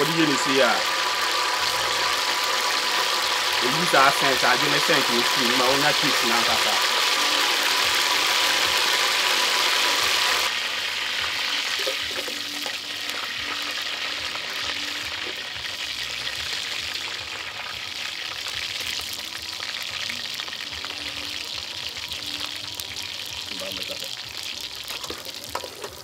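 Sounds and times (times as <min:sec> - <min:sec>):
onions sizzling in oil: 0:00.0 - 0:26.0.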